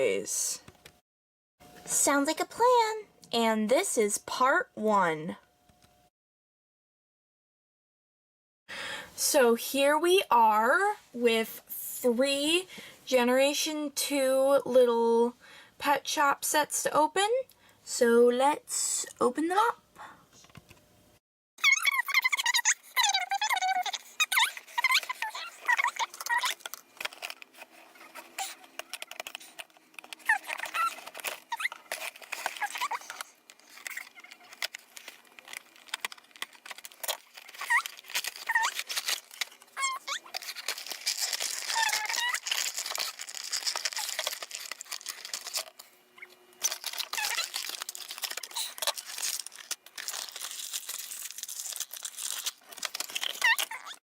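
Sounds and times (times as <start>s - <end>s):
plastic and cardboard crinkling tearing: 21.6s - 54.0s
plastic squeaks: 21.6s - 54.0s.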